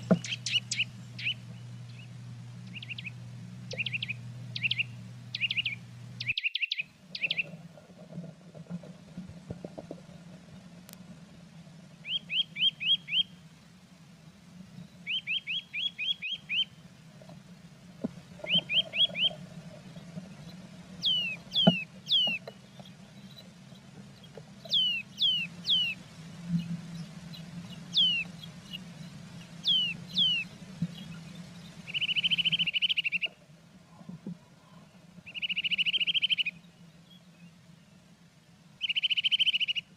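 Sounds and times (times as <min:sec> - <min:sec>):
fast bird trill: 0:00.0 - 0:07.5, 0:12.0 - 0:13.3, 0:15.0 - 0:16.8, 0:18.5 - 0:19.4, 0:21.0 - 0:22.5, 0:24.7 - 0:26.0, 0:27.3 - 0:28.8, 0:29.6 - 0:31.2, 0:31.8 - 0:33.3, 0:35.3 - 0:36.6, 0:38.8 - 0:39.9
low steady hum: 0:00.0 - 0:39.9
songbirds chirping: 0:00.0 - 0:39.9.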